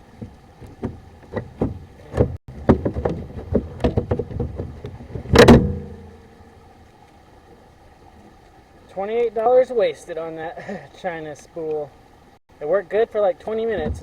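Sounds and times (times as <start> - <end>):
hose reel knocking and clunking: 0.0 - 6.0.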